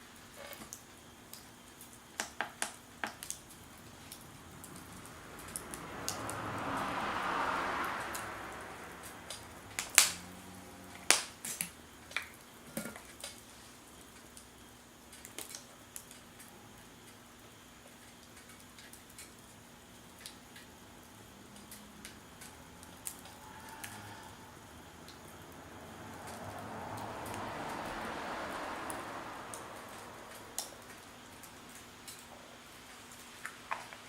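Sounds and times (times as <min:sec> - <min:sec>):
wood fire crackling: 0:00.0 - 0:34.0
broad rushing noise: 0:03.4 - 0:11.4, 0:21.2 - 0:32.2.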